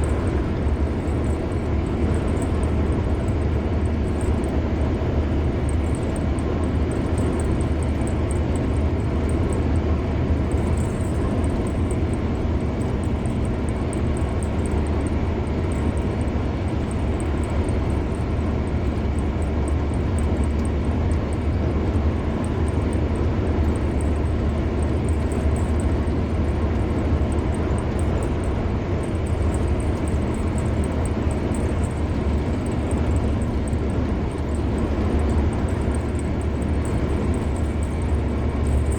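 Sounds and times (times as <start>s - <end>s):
car road noise at speed: 0.0s - 38.9s.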